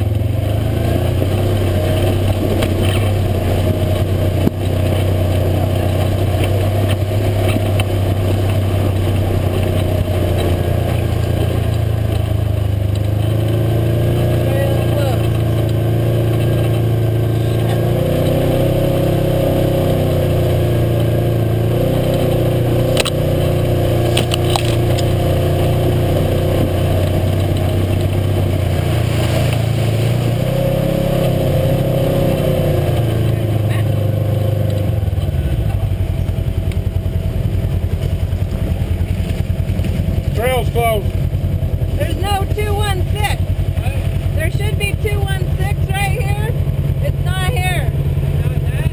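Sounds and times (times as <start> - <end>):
utility vehicle engine running: 0.0 - 48.9.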